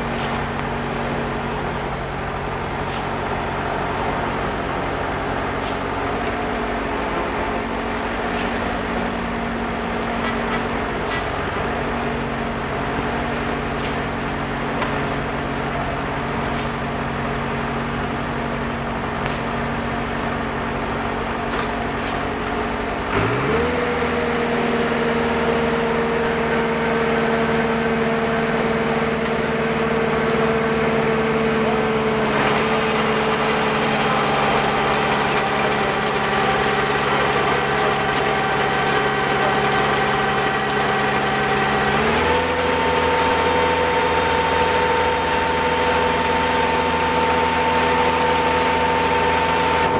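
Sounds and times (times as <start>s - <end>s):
drilling rig engine revving: 22.9s - 49.9s.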